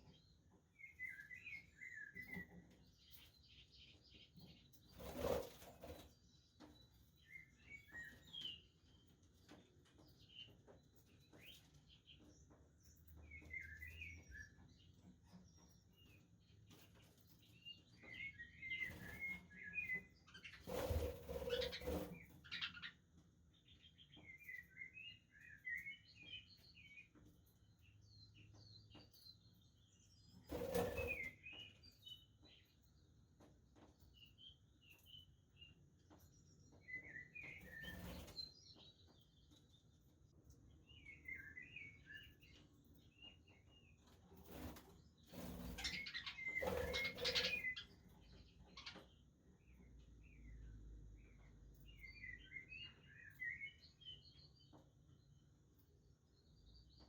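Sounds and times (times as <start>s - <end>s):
wing flapping: 20.6s - 22.3s
budgerigars chirping: 45.7s - 47.9s.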